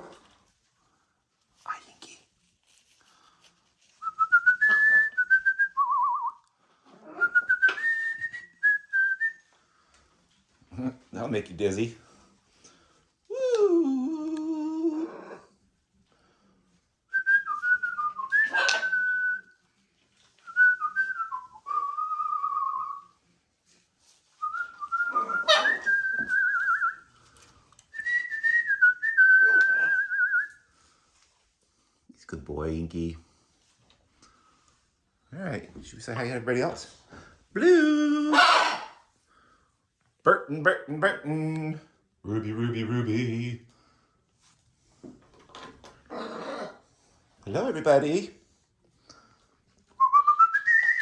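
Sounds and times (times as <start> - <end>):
person whistling a tune: 4.0 - 6.4, 50.0 - 51.0.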